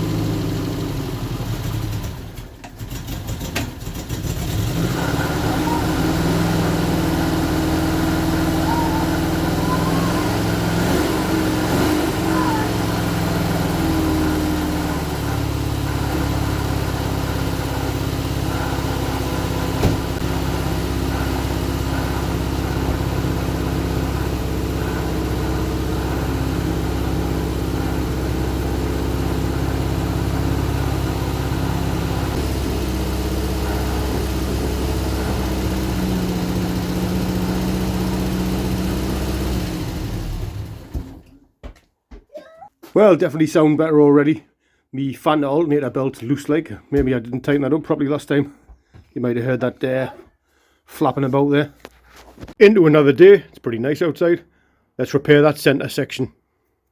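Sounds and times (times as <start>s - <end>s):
exhaust leak blowing: 0.0s - 41.2s
car engine idling: 0.0s - 41.3s.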